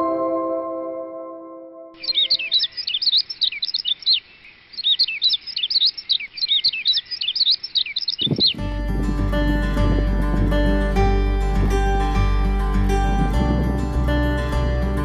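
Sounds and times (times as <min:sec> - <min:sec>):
small birds chirping: 0:02.0 - 0:10.3
plucked string music: 0:08.6 - 0:15.0.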